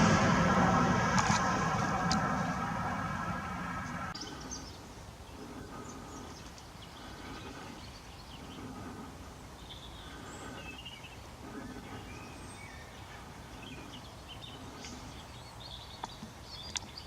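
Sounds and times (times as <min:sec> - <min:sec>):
steady low rumble: 0:00.0 - 0:15.7
small birds chirping: 0:04.1 - 0:17.0.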